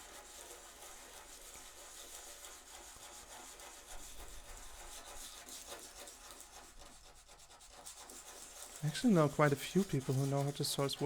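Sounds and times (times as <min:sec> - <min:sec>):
sandpaper scratching wood: 0:00.1 - 0:11.0.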